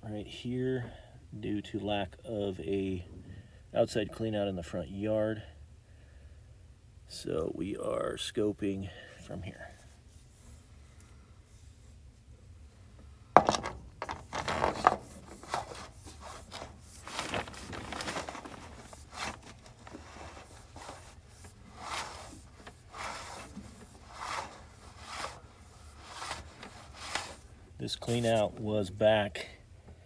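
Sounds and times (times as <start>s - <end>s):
cable rubbing and scraping: 13.4s - 28.7s.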